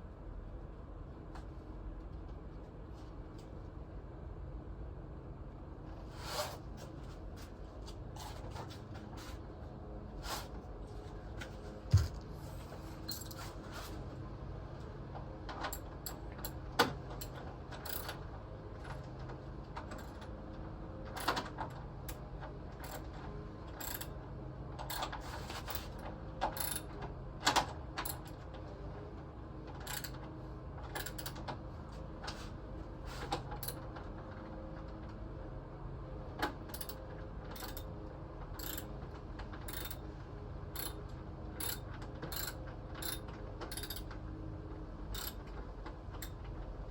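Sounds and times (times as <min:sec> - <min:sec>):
steady low hum: 0:00.0 - 0:15.1.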